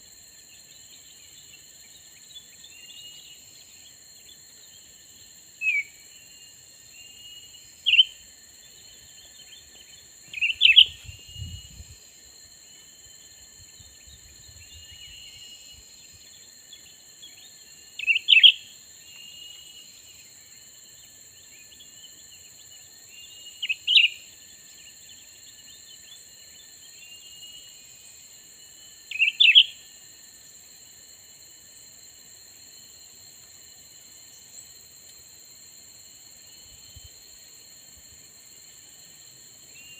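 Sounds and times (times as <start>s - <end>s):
faint chirps: 0.0s - 30.0s
insect drone: 0.0s - 39.9s.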